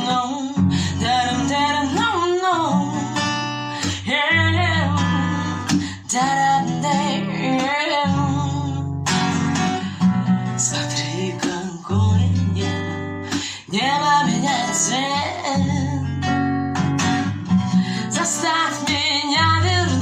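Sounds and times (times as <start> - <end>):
woman singing: 0.0 - 16.8, 17.5 - 20.0
acoustic guitar strumming: 0.0 - 20.0.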